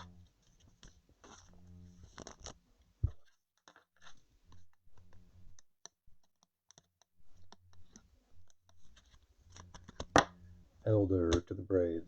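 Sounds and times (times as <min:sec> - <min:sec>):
trading cards clicking and rustling: 0:00.6 - 0:02.6, 0:03.6 - 0:10.4.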